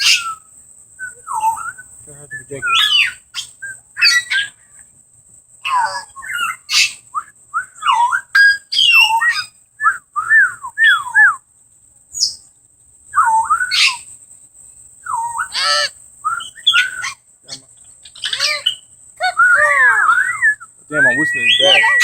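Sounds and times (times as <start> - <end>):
parrots squawking: 0.0 - 0.4, 2.5 - 4.6, 5.6 - 7.1, 15.2 - 22.0
parrots whistling: 0.0 - 0.4, 1.0 - 4.6, 5.6 - 11.4, 13.2 - 14.1, 15.0 - 17.2, 18.0 - 22.0.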